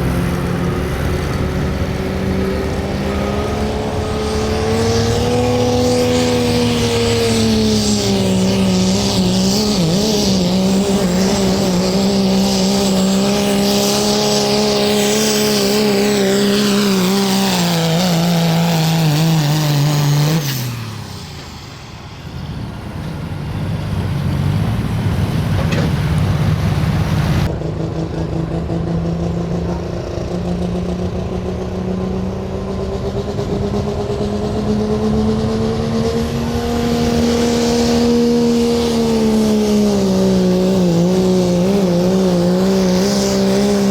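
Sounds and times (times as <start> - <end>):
diesel engine under heavy load: 0.0 - 43.9.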